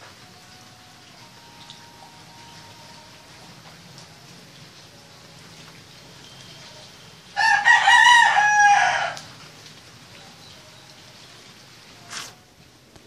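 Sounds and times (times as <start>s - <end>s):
rooster crowing: 7.4s - 9.3s.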